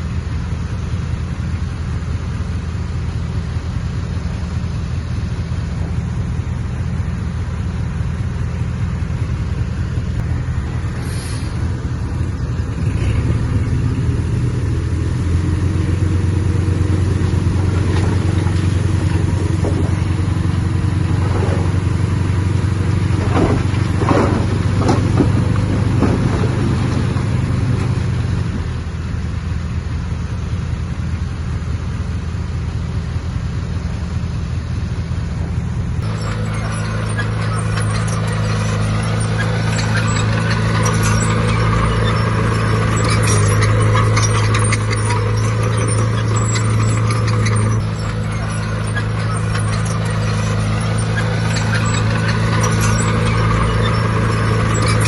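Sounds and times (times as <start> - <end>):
diesel machinery rumbling: 0.0 - 55.0
high-pitched squeals: 36.0 - 55.0.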